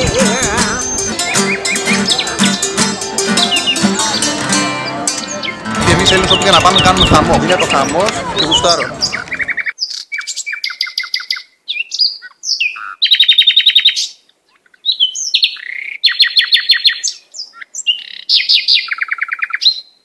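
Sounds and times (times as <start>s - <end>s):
songbird singing trills and whistles: 8.4s - 20.0s.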